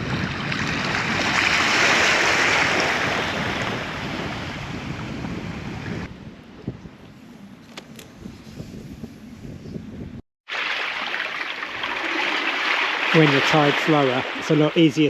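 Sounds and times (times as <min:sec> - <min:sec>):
wave washing over rocks: 0:00.0 - 0:04.6, 0:10.5 - 0:15.0.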